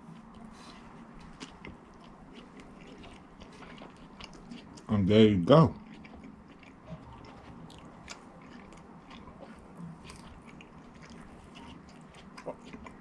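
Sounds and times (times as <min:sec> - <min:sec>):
person chewing: 0:00.0 - 0:04.9, 0:05.7 - 0:13.0.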